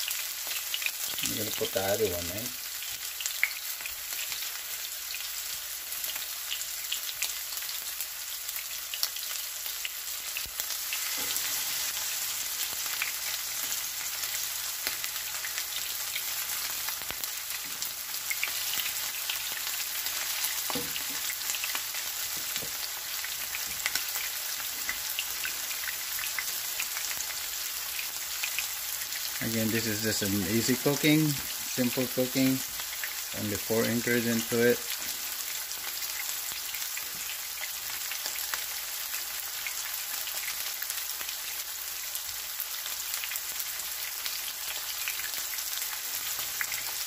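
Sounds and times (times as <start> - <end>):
cutlets sizzling in oil: 0.0 - 47.0.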